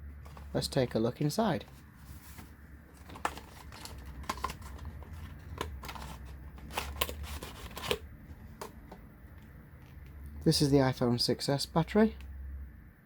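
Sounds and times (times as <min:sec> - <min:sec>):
low steady hum: 0:00.0 - 0:13.0
box and wrapping crinkling: 0:00.2 - 0:08.0.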